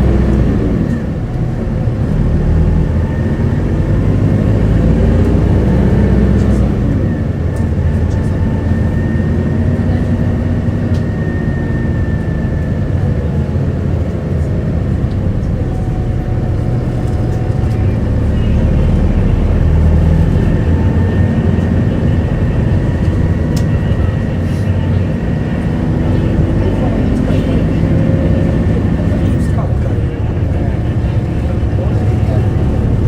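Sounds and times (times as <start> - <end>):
bus engine and road rumble: 0.0 - 33.0.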